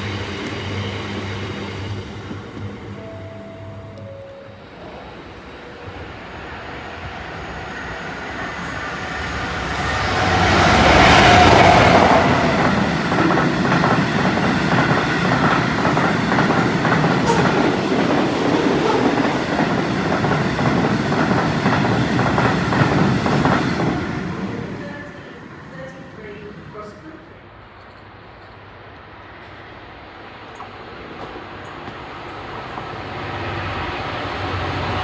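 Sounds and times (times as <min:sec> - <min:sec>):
locomotive passing: 0:00.0 - 0:27.7
wheels clacking over rail joints: 0:10.0 - 0:24.1.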